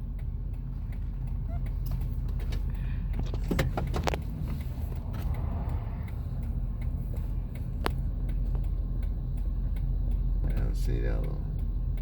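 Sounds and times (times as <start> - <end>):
car engine rumble: 0.0 - 12.0.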